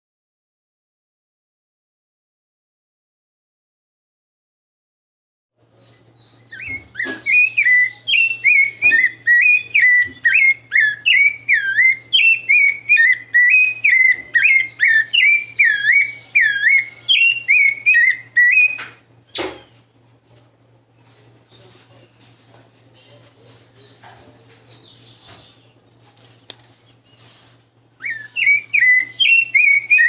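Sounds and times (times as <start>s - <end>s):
faint low hum: 5.6s - 30.0s
songbird whistling: 5.7s - 19.8s, 27.0s - 30.0s.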